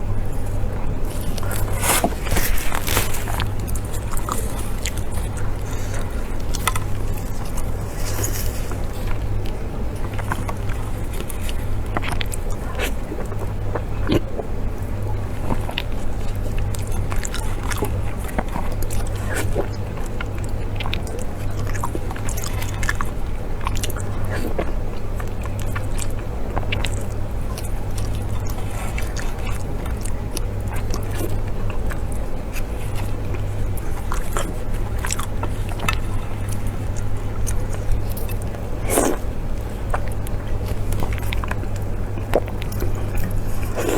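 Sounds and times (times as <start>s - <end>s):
biting and chewing: 0.0s - 43.9s
steady low hum: 0.0s - 43.9s.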